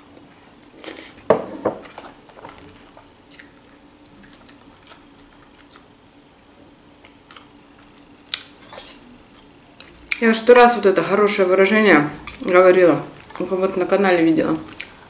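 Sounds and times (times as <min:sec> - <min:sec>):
faint steady hum: 0:00.0 - 0:15.0
person chewing food: 0:00.1 - 0:08.6, 0:09.3 - 0:10.2, 0:13.2 - 0:13.5, 0:14.7 - 0:15.0.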